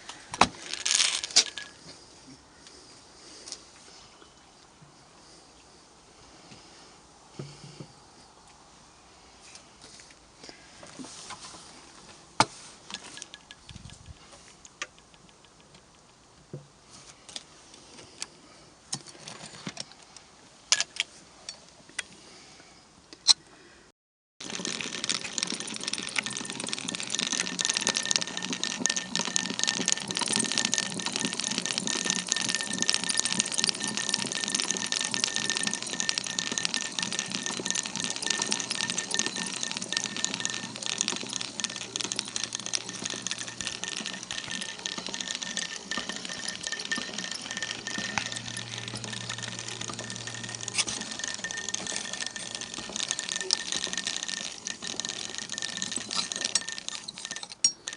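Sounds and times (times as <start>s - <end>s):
sewing machine ticking and rattling: 12.9s - 16.1s, 24.4s - 57.9s.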